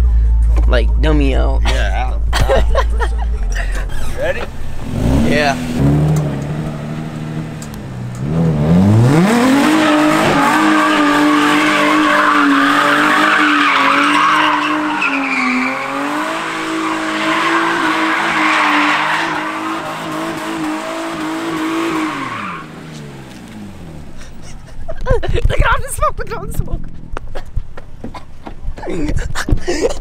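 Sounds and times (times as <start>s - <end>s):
car engine revving: 2.2s - 24.8s
tyres squealing: 9.8s - 23.1s.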